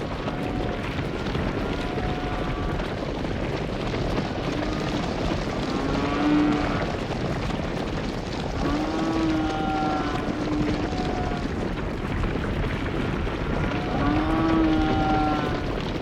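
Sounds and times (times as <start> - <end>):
steady rushing background noise: 0.0 - 16.0
cattle mooing: 0.2 - 2.8, 4.5 - 7.0, 8.6 - 11.5, 13.5 - 15.8.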